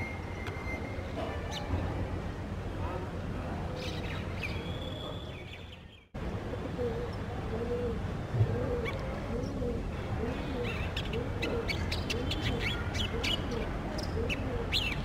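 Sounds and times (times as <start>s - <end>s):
birds chirping: 3.7s - 8.1s, 8.7s - 15.0s.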